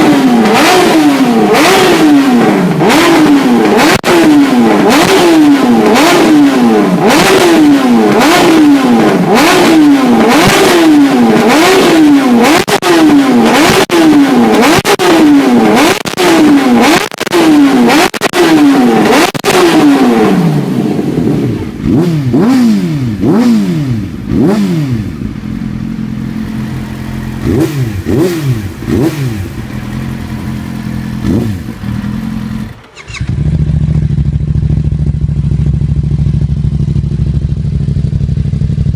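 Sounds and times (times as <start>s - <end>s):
motorcycle engine revving: 0.0s - 38.9s
motorcycle idling: 18.8s - 38.9s.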